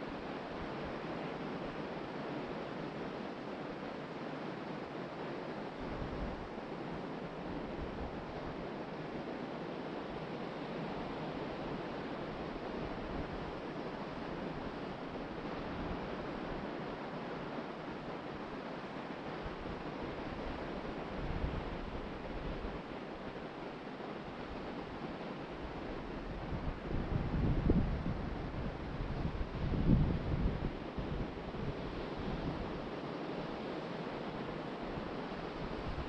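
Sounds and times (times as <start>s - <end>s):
ocean surf washing on beach: 0.0s - 36.0s
wind buffeting microphone: 25.7s - 32.9s.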